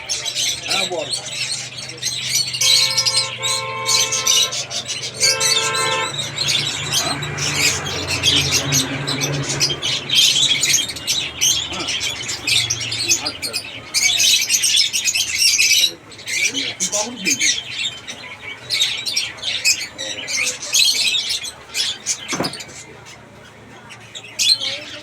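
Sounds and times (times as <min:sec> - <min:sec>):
caged birds chirping and squawking: 0:00.0 - 0:25.0
steady honking tone: 0:02.5 - 0:10.7.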